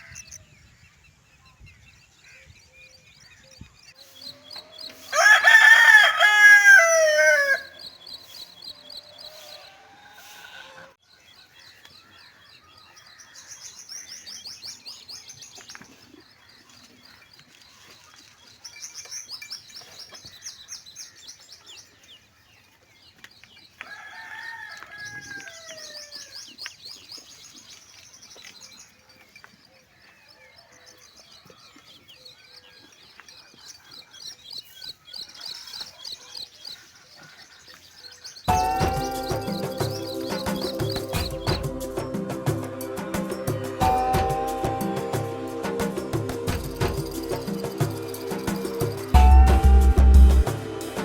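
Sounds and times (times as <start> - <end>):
songbirds chirping in high trills: 0.0 - 51.0
rooster crowing: 4.9 - 7.9, 23.8 - 26.3.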